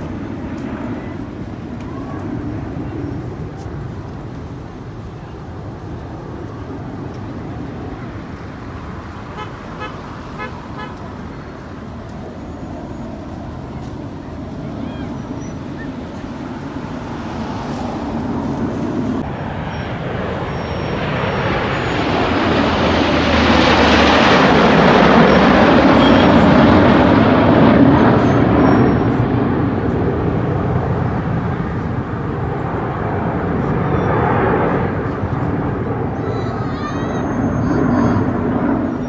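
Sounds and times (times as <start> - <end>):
aircraft flying overhead: 0.0 - 39.0.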